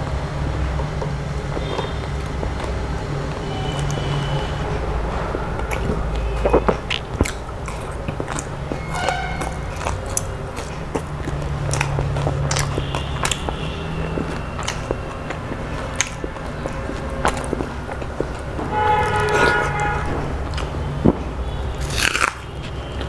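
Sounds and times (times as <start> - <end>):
steady low rumble: 0.0 - 21.9
chewing and biting fried fish: 0.3 - 23.0
wet mouth clicks and smacks: 4.6 - 23.0.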